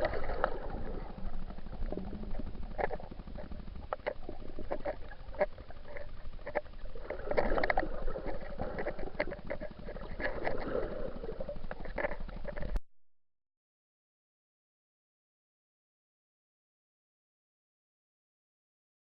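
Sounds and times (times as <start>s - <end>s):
sharp clicks and knocks: 0.0s - 10.8s, 11.5s - 12.8s
water gurgling underwater: 0.0s - 12.8s.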